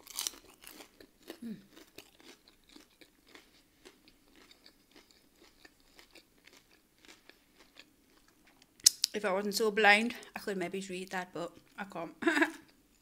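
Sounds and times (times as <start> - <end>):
chewing crunchy food: 0.0 - 9.2, 11.5 - 11.8.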